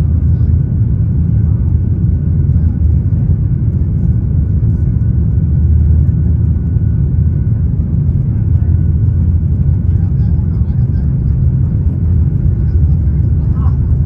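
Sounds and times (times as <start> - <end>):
jet engine rumble in cabin: 0.0 - 14.0.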